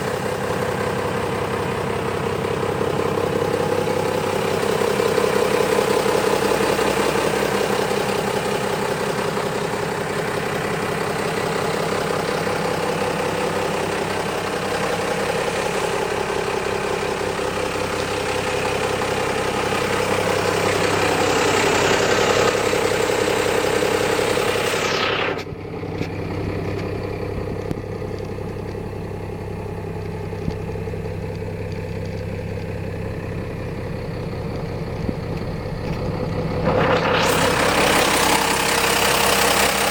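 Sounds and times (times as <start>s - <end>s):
diesel engine running loud: 0.0s - 39.9s
engine idling: 0.0s - 39.9s
rising whine: 16.0s - 27.9s, 33.2s - 39.9s.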